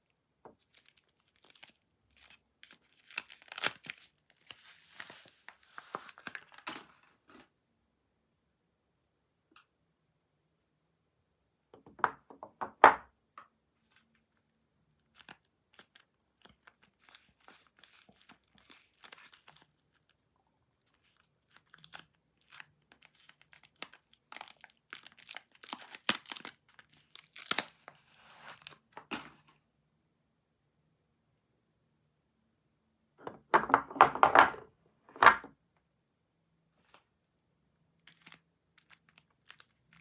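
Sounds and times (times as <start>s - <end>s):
wrapper tearing and crinkling: 0.7s - 7.0s, 15.0s - 20.2s, 20.9s - 29.4s, 38.0s - 40.0s.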